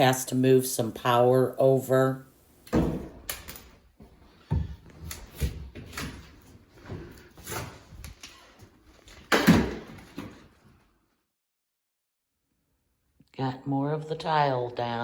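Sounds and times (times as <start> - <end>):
knocks and bangs on drywall: 9.3 - 10.4.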